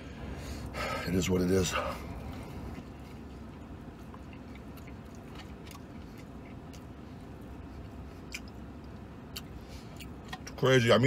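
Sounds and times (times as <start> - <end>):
steady low rumble: 0.0 - 11.0
man chewing food: 1.9 - 10.6
wet mouth clicks and smacks: 8.2 - 10.6.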